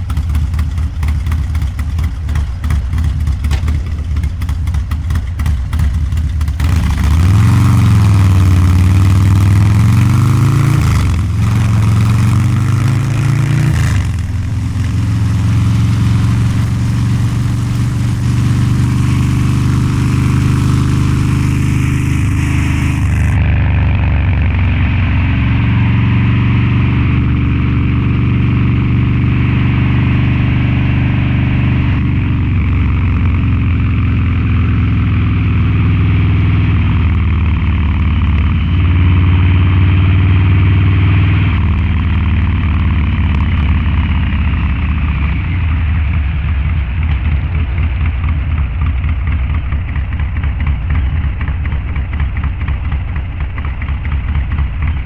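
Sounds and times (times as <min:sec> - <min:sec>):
motorcycle engine riding: 0:00.0 - 0:55.0.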